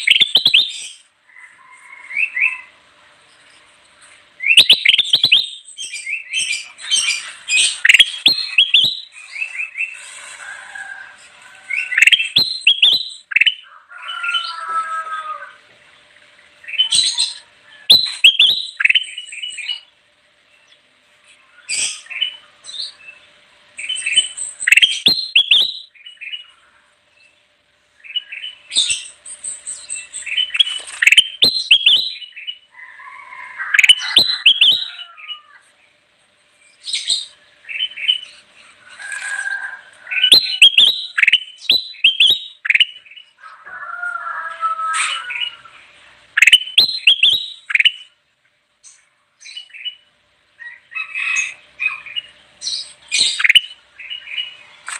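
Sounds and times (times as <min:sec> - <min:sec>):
bulbul singing whistled notes: 0:00.0 - 0:01.0, 0:04.4 - 0:10.0, 0:11.8 - 0:13.6, 0:17.8 - 0:19.8, 0:23.8 - 0:26.5, 0:28.0 - 0:32.6, 0:40.2 - 0:43.1, 0:46.4 - 0:48.1.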